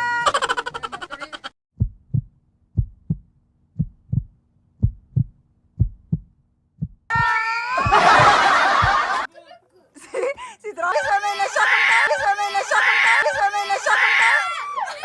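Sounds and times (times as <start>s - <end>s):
heartbeat double thump: 1.8s - 7.2s, 7.8s - 9.1s.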